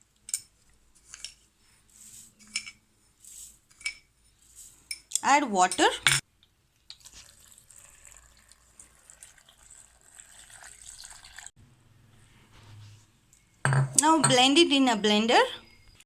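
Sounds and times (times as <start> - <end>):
water pouring into blender jar: 7.0 - 11.5.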